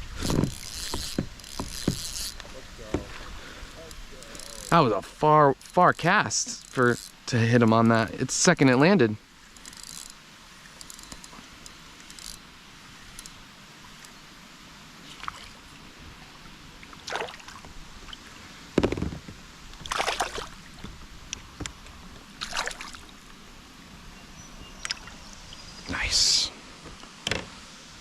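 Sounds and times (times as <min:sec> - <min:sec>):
water splashing against kayak: 0:00.0 - 0:04.9, 0:16.8 - 0:23.2.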